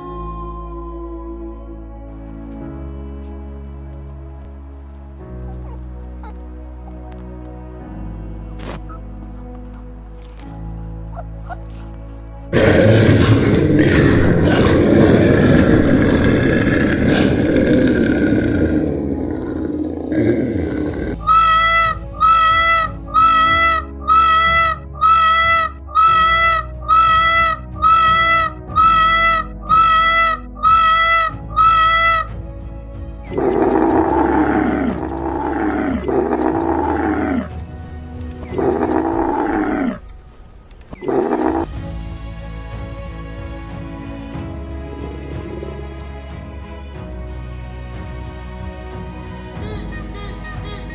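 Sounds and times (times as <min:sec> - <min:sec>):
background music with steady beat: 0:01.8 - 0:15.4, 0:21.2 - 0:39.4, 0:41.0 - 0:50.9
camels bellowing: 0:08.6 - 0:32.3, 0:33.3 - 0:37.7, 0:38.4 - 0:40.1, 0:41.0 - 0:41.8
dinosaur roar: 0:12.5 - 0:21.6, 0:33.3 - 0:37.6, 0:38.4 - 0:40.1, 0:41.0 - 0:41.8.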